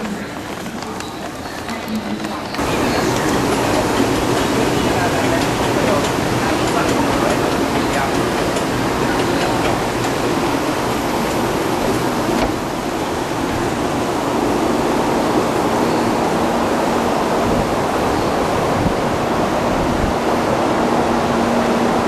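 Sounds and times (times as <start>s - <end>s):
high speed train rushing: 0.0s - 22.0s.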